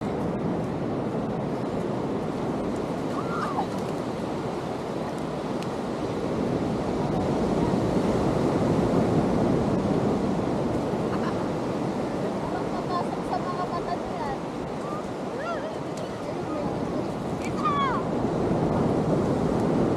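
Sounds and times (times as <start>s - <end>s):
ocean surf breaking: 0.0s - 19.9s.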